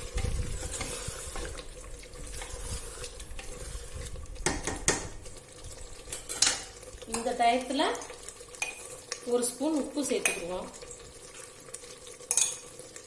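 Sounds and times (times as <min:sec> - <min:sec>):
spoon scraping and clinking pot: 0:00.0 - 0:01.6, 0:02.2 - 0:04.0, 0:06.1 - 0:07.3, 0:08.5 - 0:09.0, 0:10.2 - 0:10.5, 0:12.2 - 0:12.8
spoon stirring food in a pan: 0:00.0 - 0:13.0.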